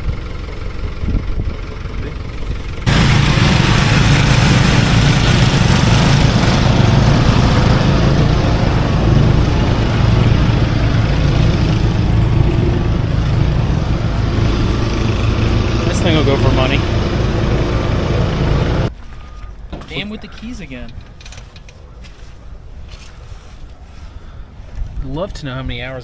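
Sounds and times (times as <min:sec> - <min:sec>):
engine running loudly: 0:00.0 - 0:18.9
quieter engine background: 0:00.0 - 0:26.0.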